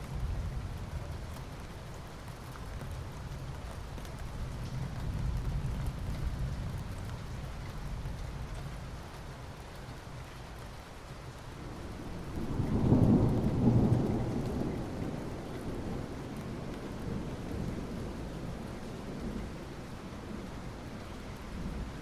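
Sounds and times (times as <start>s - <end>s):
soft rain on asphalt: 0.0s - 22.0s
thunder rumbling: 11.6s - 19.6s.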